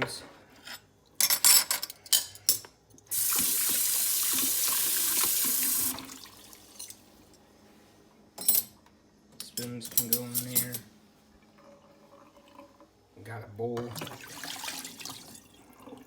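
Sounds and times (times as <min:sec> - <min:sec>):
tap water running: 0:03.1 - 0:07.1, 0:11.6 - 0:12.9, 0:13.8 - 0:16.0
metal spoons clinking: 0:09.4 - 0:10.8.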